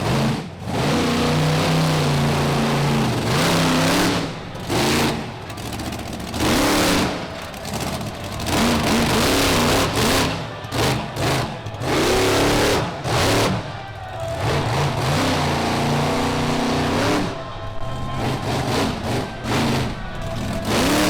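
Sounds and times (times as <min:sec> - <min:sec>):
truck engine revving hard: 0:00.0 - 0:21.0.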